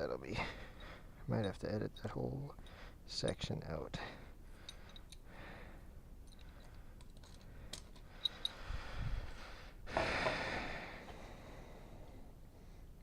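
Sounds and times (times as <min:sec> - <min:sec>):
small metal parts clicking: 0:04.6 - 0:05.3, 0:06.2 - 0:08.6.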